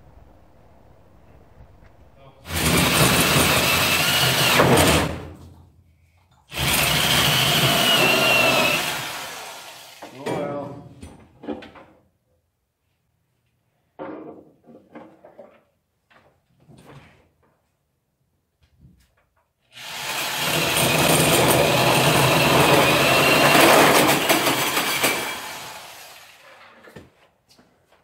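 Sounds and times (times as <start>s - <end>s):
power tool running: 2.5s - 5.2s, 6.5s - 10.2s, 19.8s - 26.5s.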